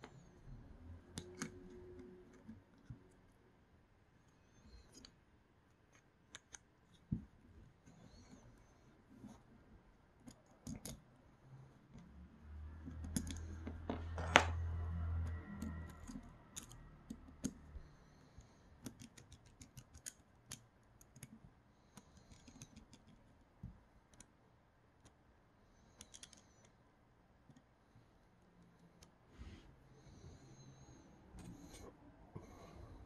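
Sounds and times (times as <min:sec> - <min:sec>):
small parts clicking and tapping: 0:01.0 - 0:03.1, 0:04.7 - 0:08.4, 0:10.2 - 0:11.1, 0:12.7 - 0:24.4, 0:26.0 - 0:26.8.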